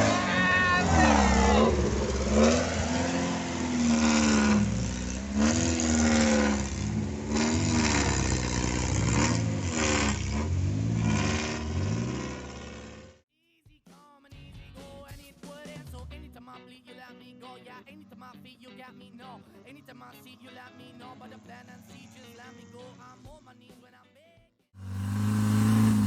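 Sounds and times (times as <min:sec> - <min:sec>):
buggy engine revving: 0:00.0 - 0:13.2, 0:24.8 - 0:26.0.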